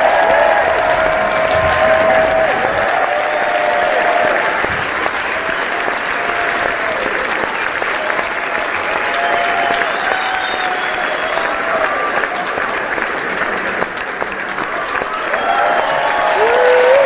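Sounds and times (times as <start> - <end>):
crowd applause: 0.0 - 17.0.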